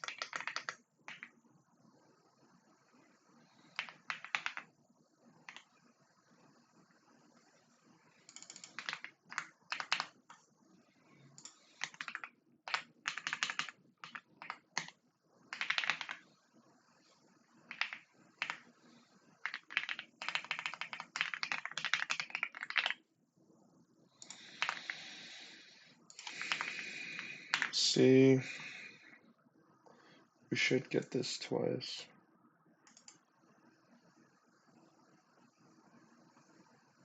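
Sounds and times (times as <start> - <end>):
typing on computer keyboard: 0.0 - 1.4, 3.5 - 4.7, 5.4 - 5.8, 8.2 - 10.4, 11.4 - 16.3, 17.7 - 18.8, 19.4 - 23.0, 24.2 - 25.2, 26.1 - 27.8, 32.8 - 33.2.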